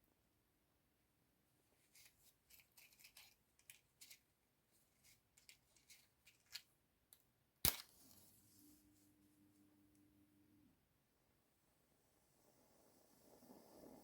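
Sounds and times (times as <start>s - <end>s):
matchbox and matches handled: 1.8s - 6.8s.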